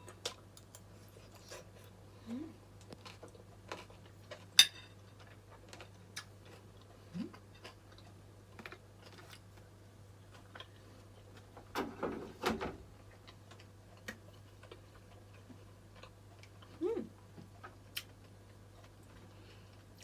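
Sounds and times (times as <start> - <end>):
chewing and mouth sounds: 13.0 - 20.0.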